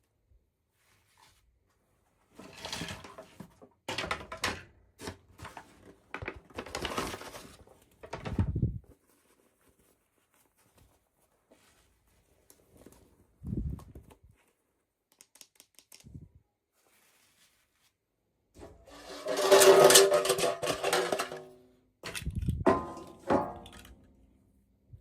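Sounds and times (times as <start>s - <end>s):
packaging crinkling and rustling: 5.4s - 11.7s.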